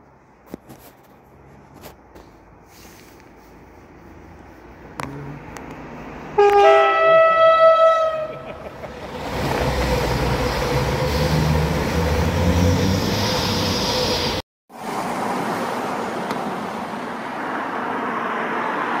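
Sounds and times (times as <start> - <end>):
train passing with loud rumble: 3.4 - 19.0
two-tone train horn: 6.4 - 8.4.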